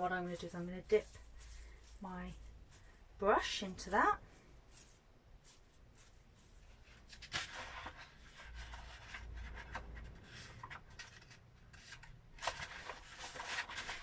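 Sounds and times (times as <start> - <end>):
leaf brush scratchy rubbing: 0.0 - 9.5.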